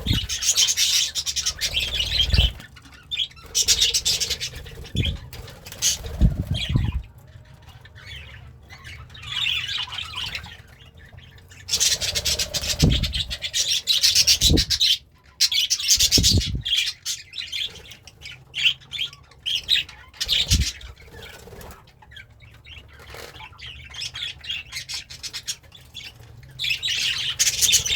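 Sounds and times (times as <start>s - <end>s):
budgie chirping and warbling: 0.0s - 10.6s, 11.7s - 15.0s, 15.8s - 16.9s, 19.9s - 21.7s.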